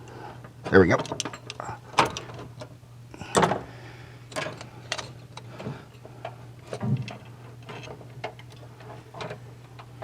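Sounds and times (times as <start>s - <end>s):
hand tools clicking and knocking: 0.9s - 2.3s.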